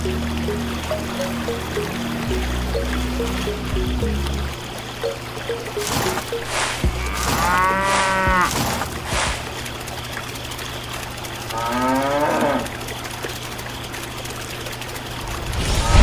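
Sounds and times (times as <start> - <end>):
cow mooing: 6.9 - 8.6, 11.5 - 12.7.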